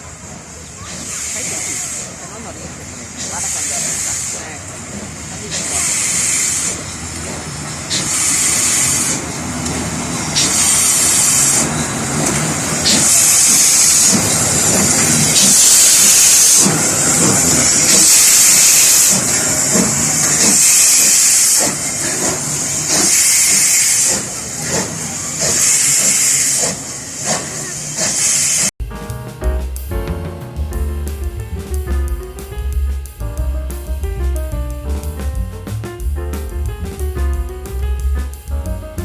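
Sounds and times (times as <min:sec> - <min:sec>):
steam locomotive hissing chuffs: 0:00.8 - 0:36.0
low rumble: 0:28.8 - 0:39.0.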